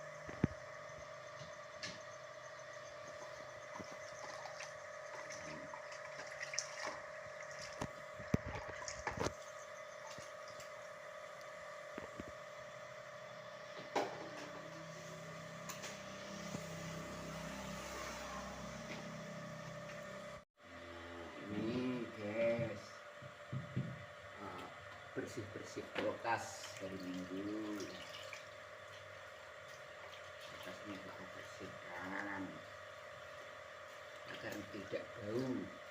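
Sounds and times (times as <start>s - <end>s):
steady hum: 0.0s - 35.9s
water running: 3.7s - 9.2s, 25.8s - 32.1s.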